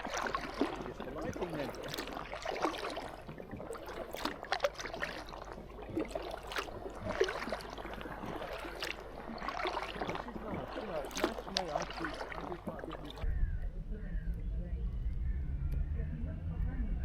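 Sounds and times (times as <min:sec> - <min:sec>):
water trickling and dripping: 0:00.0 - 0:13.3
paddle dipping in water: 0:00.0 - 0:13.4.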